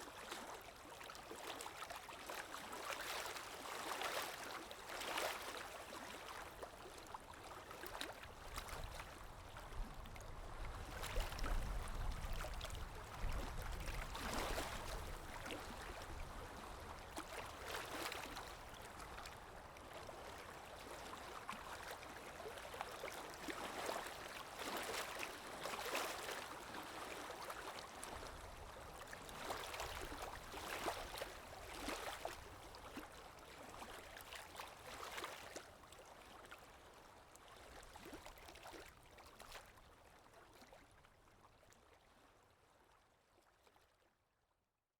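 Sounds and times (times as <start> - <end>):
sea waves lapping: 13.4 - 16.1.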